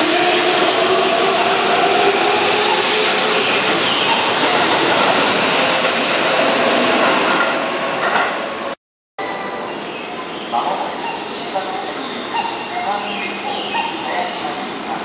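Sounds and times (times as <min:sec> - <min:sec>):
electric train running past: 0:00.0 - 0:15.0.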